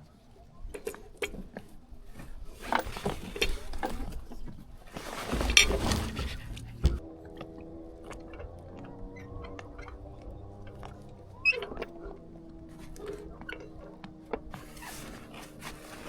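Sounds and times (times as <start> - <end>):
sailcloth rustling and crinkling: 0.8 - 7.1, 9.8 - 16.0
clicks and knocks: 5.3 - 7.0
sharp thump: 5.4 - 7.0.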